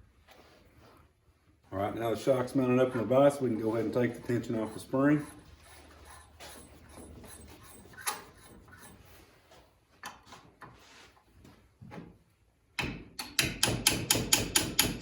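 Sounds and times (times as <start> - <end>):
metal tapping on metal nut: 12.8 - 15.0.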